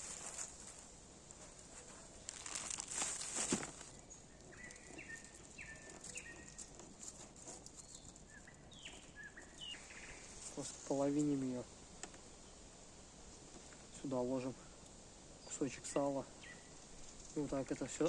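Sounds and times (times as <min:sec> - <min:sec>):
rustling handling noise: 0:00.0 - 0:09.6
bird chirping: 0:00.0 - 0:10.7, 0:15.4 - 0:18.0
insects chirring: 0:00.0 - 0:11.3.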